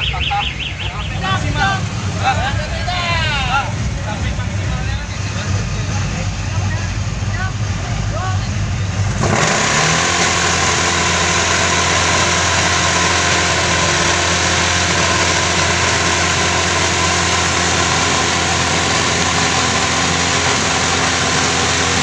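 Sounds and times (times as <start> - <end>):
car engine running steadily: 0.0 - 22.0.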